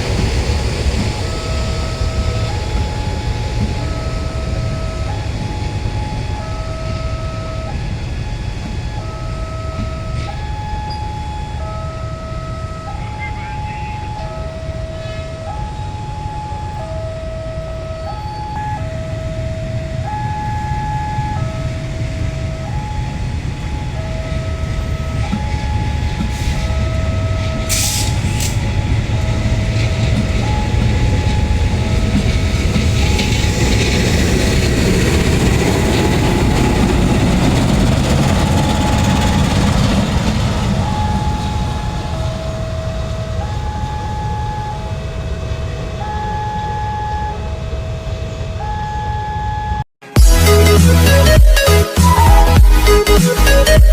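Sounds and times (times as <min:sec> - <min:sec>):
train rumbling past: 0:00.0 - 0:49.7
two-tone crossing warning signal: 0:00.0 - 0:53.9
sharp hiss: 0:27.7 - 0:28.7.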